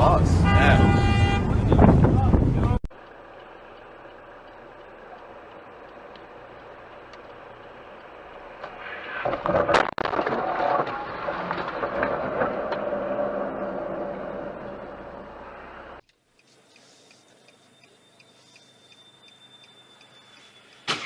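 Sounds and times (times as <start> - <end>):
vehicle driving noise: 0.0 - 21.0
vehicle crash impact: 9.1 - 15.3.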